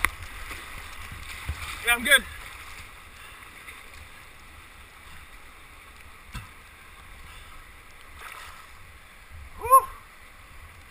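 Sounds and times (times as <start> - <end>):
river water rushing: 0.0 - 10.9.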